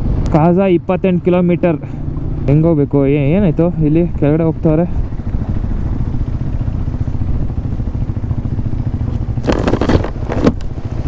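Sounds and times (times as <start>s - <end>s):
motorcycle engine running: 1.8s - 11.0s
wind on microphone: 2.2s - 11.0s
loud scraping rustle: 9.0s - 11.0s.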